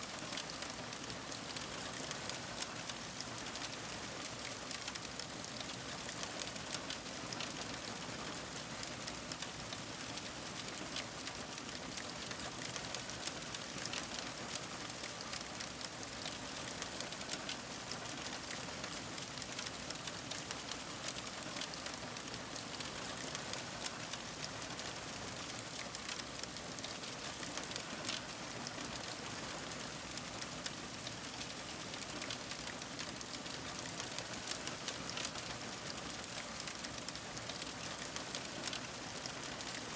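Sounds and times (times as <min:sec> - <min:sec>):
fire crackling and popping: 0:30.6 - 0:35.5, 0:36.3 - 0:38.8.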